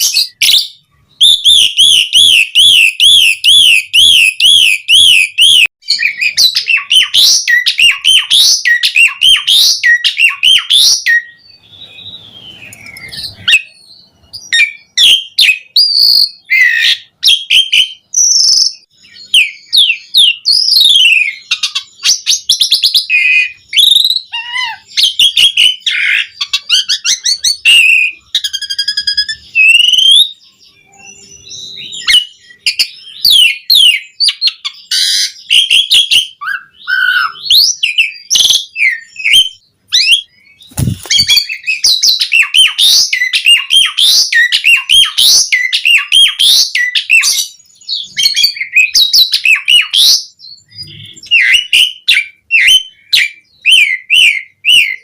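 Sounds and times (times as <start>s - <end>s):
starling singing: 0.0s - 55.0s.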